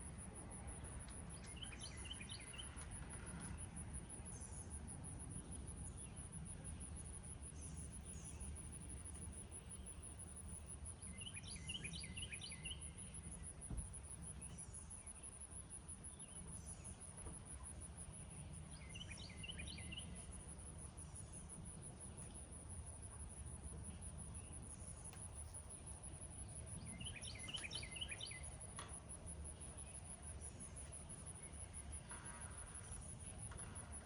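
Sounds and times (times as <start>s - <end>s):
songbird singing rapid notes: 26.7s - 28.5s.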